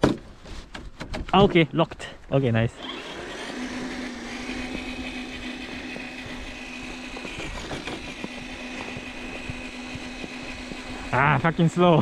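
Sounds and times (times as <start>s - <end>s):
toy truck motor whining: 2.7s - 12.0s.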